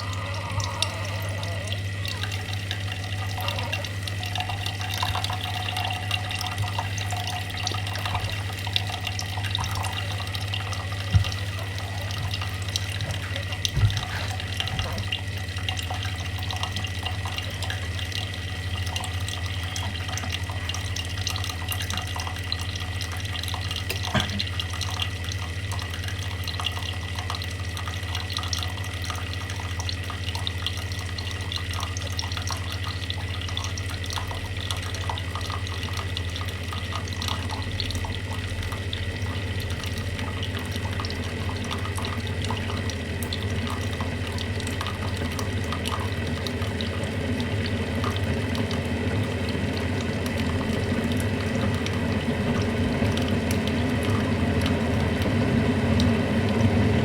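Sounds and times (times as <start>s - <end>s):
low hum: 0.0s - 15.2s
water trickling and dripping: 0.0s - 57.0s.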